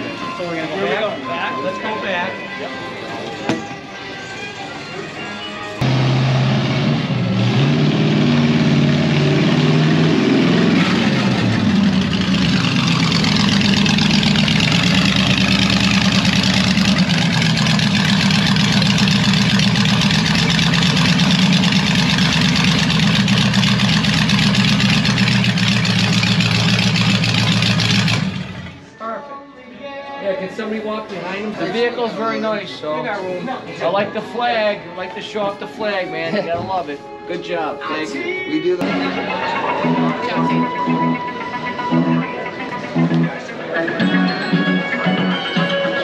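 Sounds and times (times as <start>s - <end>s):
car engine revving and idling: 5.8s - 28.9s.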